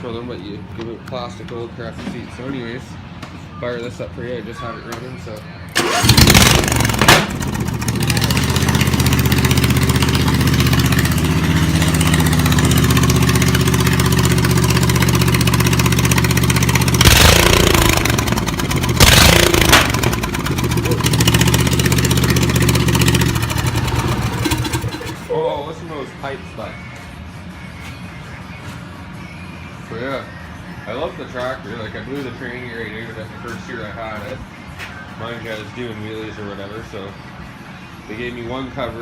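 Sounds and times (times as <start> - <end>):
lawn tractor engine running: 5.8 - 25.3.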